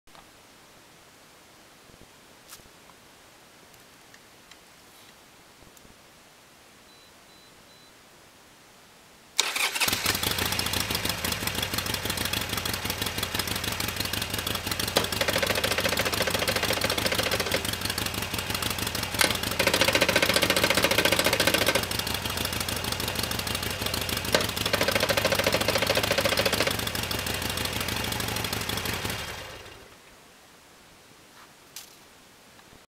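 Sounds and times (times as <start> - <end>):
motorcycle engine running: 9.6 - 30.0.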